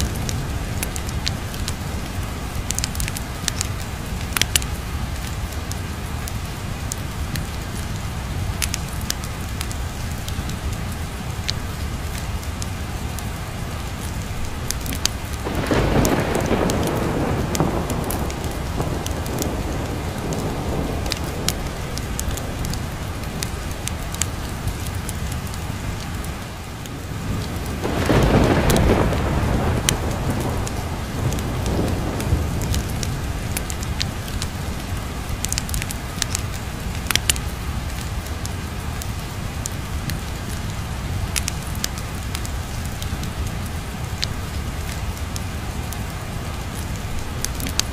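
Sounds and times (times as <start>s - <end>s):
steady rain: 0.0s - 47.9s
thunder rolling: 15.3s - 24.2s, 27.2s - 34.5s.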